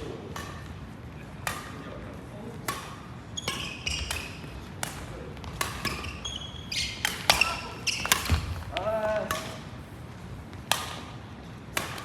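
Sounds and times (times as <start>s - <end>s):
racket hitting shuttlecock: 0.0s - 1.8s, 2.6s - 9.7s, 10.5s - 12.0s
shoes squeaking on court: 3.3s - 4.8s, 5.4s - 8.7s.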